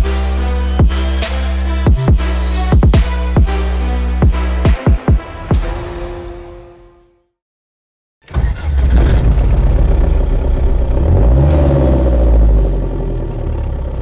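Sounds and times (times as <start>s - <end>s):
vehicle engine rumbling under load: 8.3s - 14.0s.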